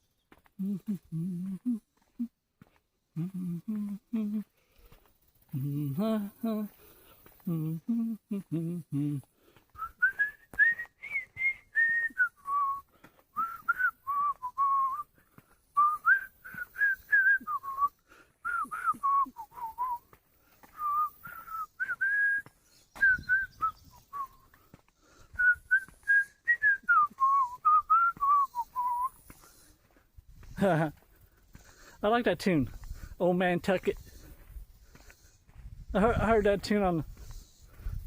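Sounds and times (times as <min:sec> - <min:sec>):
man whistling a melody: 0:00.6 - 0:02.3, 0:03.2 - 0:04.5, 0:07.4 - 0:29.6.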